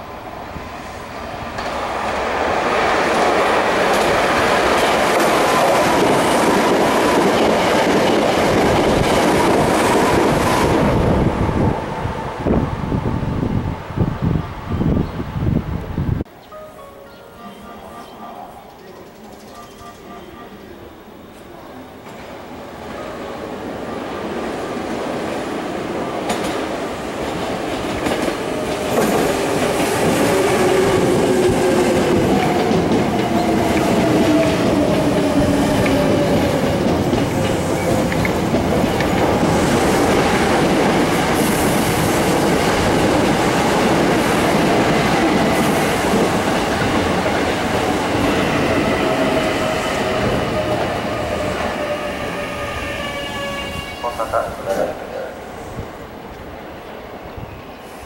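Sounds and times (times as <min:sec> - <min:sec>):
electric train passing: 0:00.0 - 0:58.0
wheel and rail noise: 0:20.6 - 0:54.1.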